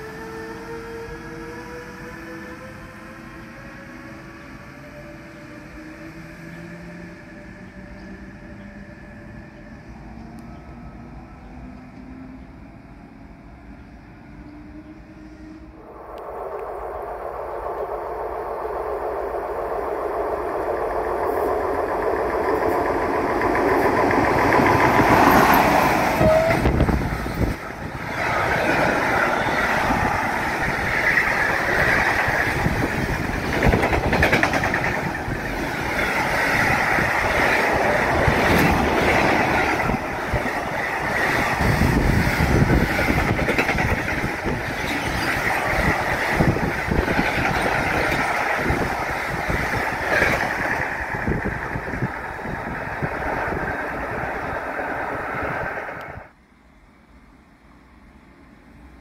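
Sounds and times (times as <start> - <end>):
freight train passing: 0.0 - 59.0
steel wheels clattering on rails: 20.6 - 52.1.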